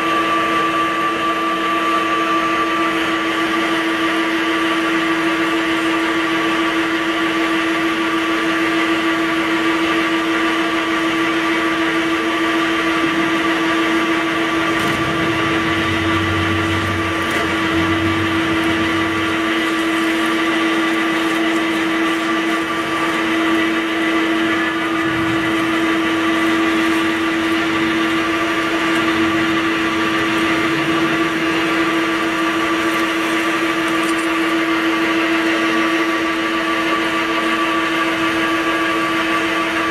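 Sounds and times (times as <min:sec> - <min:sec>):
drilling machine motor whine: 0:00.0 - 0:39.9
low hum: 0:12.3 - 0:37.4.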